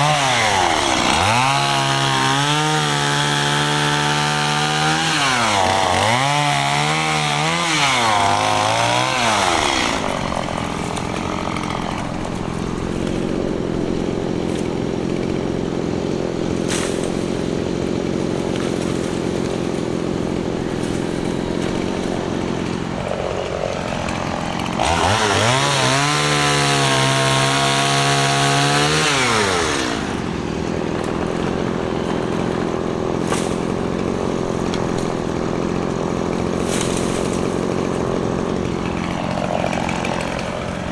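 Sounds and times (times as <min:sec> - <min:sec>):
chainsaw revving and idling: 0:00.0 - 0:40.9.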